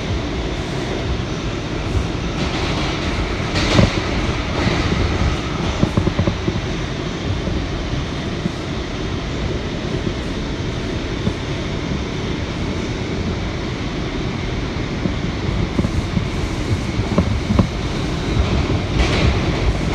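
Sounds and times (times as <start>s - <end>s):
subway train wheels rumbling on rail: 0.0s - 19.9s
train rattling: 0.0s - 19.9s.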